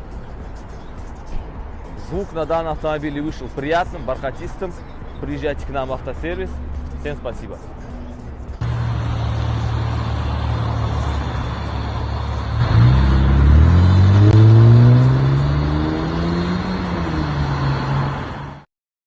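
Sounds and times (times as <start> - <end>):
car engine idling and revving: 6.2 - 18.6.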